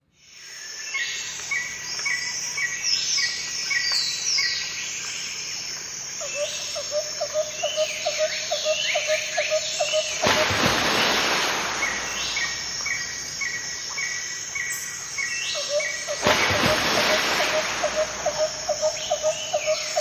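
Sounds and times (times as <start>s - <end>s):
sudden rush of noise: 10.2s - 13.2s
low repeated bird note: 16.1s - 20.0s.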